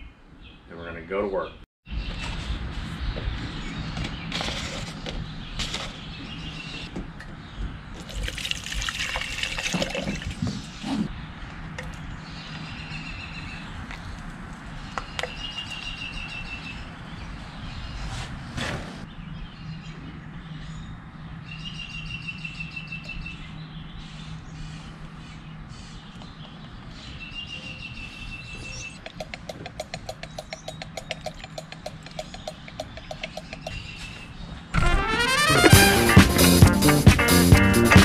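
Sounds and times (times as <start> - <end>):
songbird trilling: 25.8 - 34.6
rapid clicks: 29.0 - 33.7.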